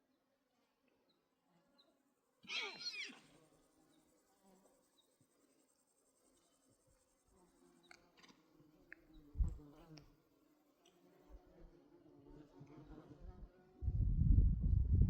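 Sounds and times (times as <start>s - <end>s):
animal call: 2.4s - 3.4s.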